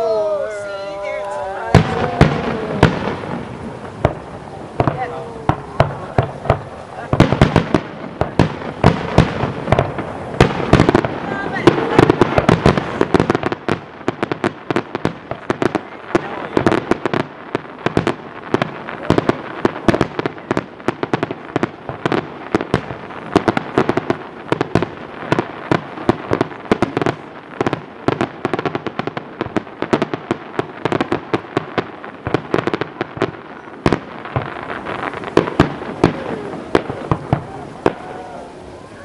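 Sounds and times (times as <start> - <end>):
fireworks bangs and crackling: 0.0 - 39.0.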